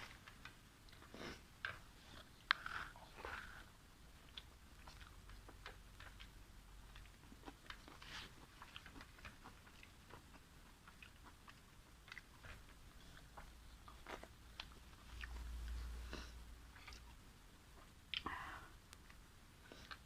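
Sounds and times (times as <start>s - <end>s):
chewing with wet mouth clicks: 0.9s - 15.4s, 16.7s - 17.2s.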